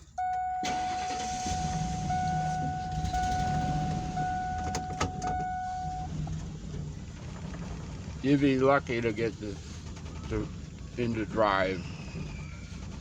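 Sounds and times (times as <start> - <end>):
high warning tone: 0.0 - 6.1
van engine starting and running: 0.0 - 13.0.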